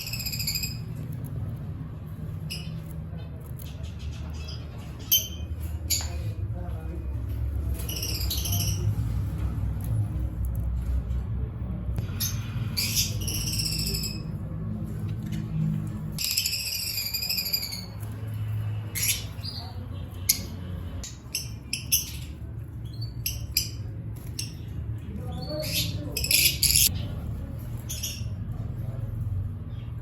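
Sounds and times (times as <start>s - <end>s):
canary singing: 0.0s - 6.2s, 7.7s - 9.2s, 12.0s - 14.4s, 15.8s - 27.1s.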